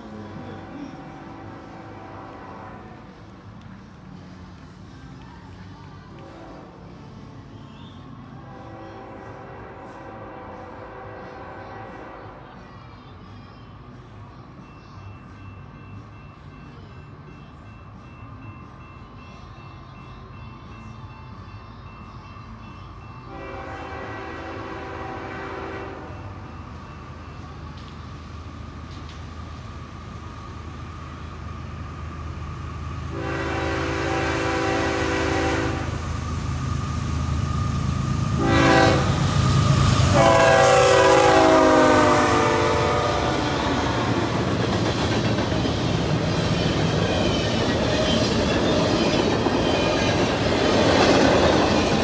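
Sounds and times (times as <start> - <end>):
train horn blasts: 0.0 - 3.2, 6.1 - 6.9, 8.3 - 12.6, 23.3 - 26.4, 33.1 - 36.1, 38.3 - 44.5
locomotive engine drone: 0.0 - 52.0
freight cars clattering on rails: 43.5 - 52.0.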